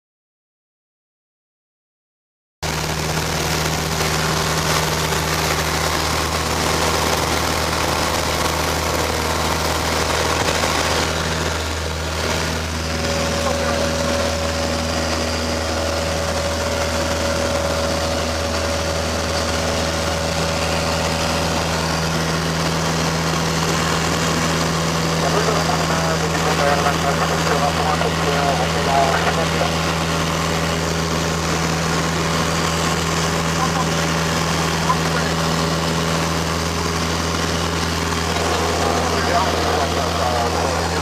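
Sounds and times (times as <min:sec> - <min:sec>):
light aircraft engine droning: 0:02.6 - 0:41.0.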